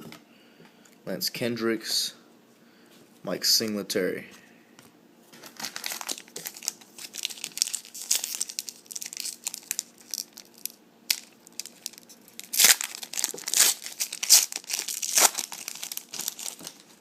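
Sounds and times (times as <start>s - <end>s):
foil wrapper crinkling and tearing: 5.4s - 17.0s.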